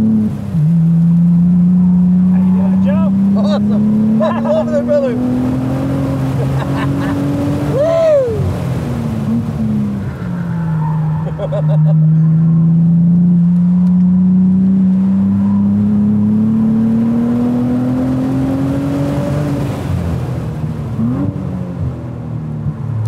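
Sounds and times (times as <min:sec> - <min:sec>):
car engine revving from inside cabin: 0:00.0 - 0:07.8, 0:12.0 - 0:19.9.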